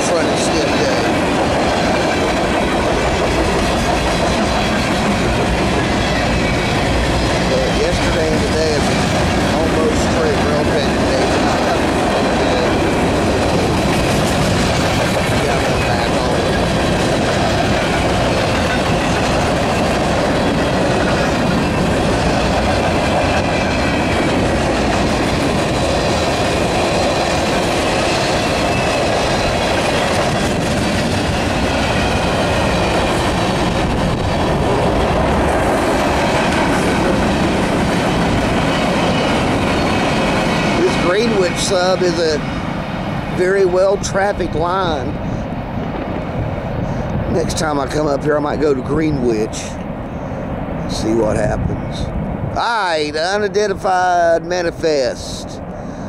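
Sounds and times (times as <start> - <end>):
steel wheels on rail: 0.0 - 52.0.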